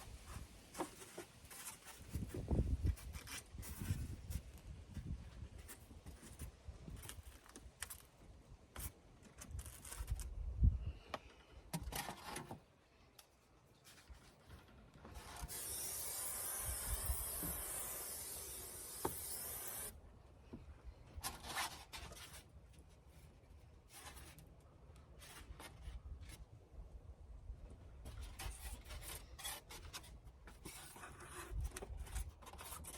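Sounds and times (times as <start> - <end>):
foam board rubbing and scraping: 0.2 - 7.4, 15.0 - 19.9, 28.1 - 32.9
steady hiss: 15.5 - 19.9.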